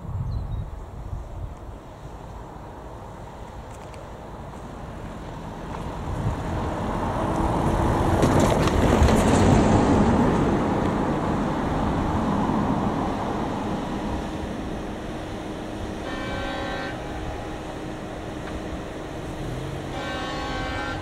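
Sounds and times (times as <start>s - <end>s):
vehicle passing by: 4.4s - 15.7s.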